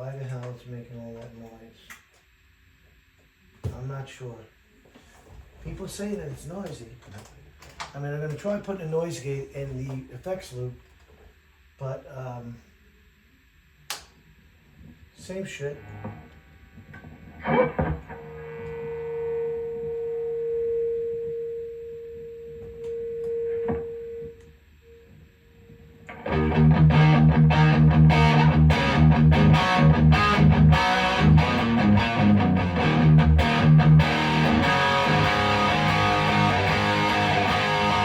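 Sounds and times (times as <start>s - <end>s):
electric guitar sustained note: 15.2s - 38.0s
distorted electric guitar picking: 15.8s - 24.4s, 26.0s - 38.0s.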